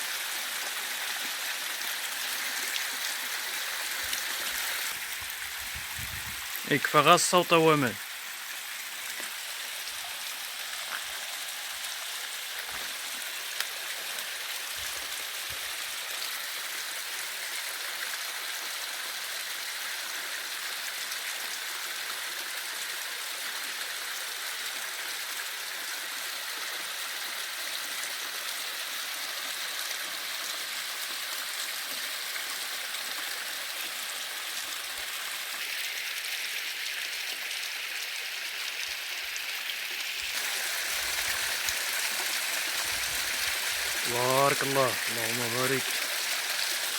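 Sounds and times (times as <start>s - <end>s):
mountain stream rushing: 0.0s - 17.6s, 40.2s - 46.9s.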